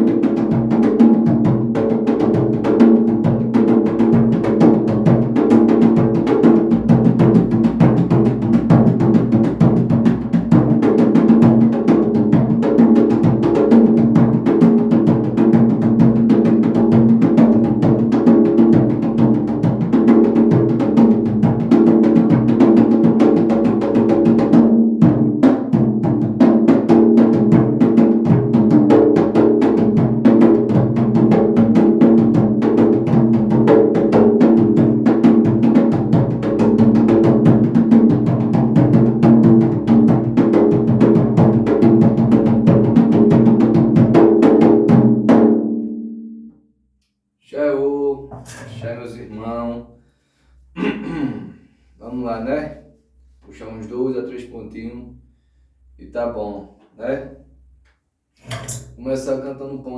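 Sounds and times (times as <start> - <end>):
hand drum rhythm: 0.0 - 46.2.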